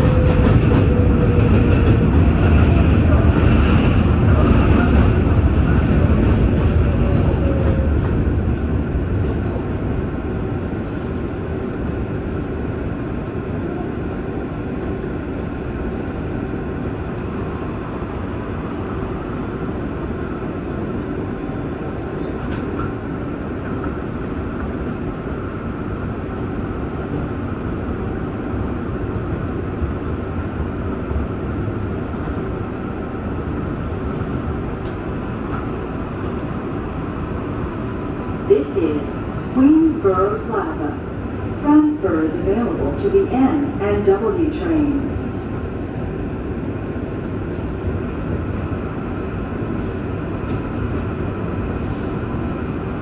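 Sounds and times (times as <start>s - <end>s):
subway train wheels rumbling: 0.0s - 53.0s.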